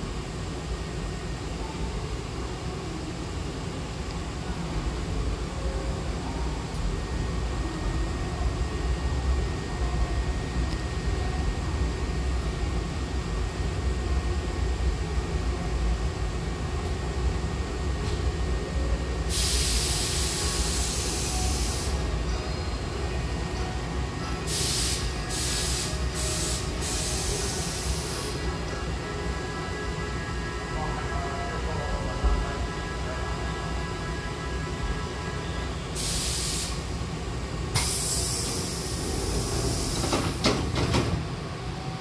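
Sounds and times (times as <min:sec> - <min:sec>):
train equipment humming: 0:00.0 - 0:42.0
compressed air hissing: 0:19.3 - 0:22.0, 0:24.5 - 0:28.4, 0:36.0 - 0:37.0, 0:37.8 - 0:40.4.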